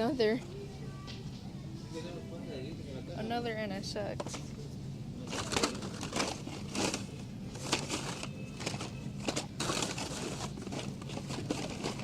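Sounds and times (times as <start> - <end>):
toy cars clacking in plastic packs: 5.2 - 12.0.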